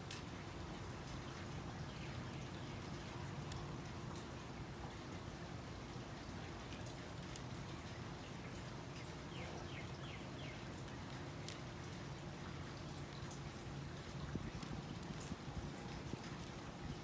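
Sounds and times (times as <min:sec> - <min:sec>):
basket weaving material crackling: 0:10.7 - 0:17.0.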